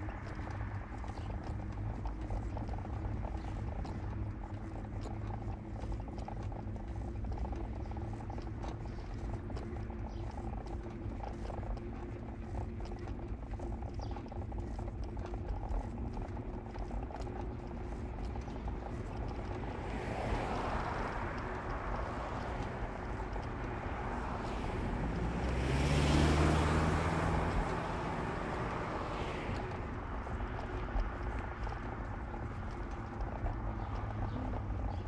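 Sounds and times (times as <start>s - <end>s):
car road and engine noise: 0.0s - 35.0s
passing vehicle engine drone: 17.8s - 35.0s.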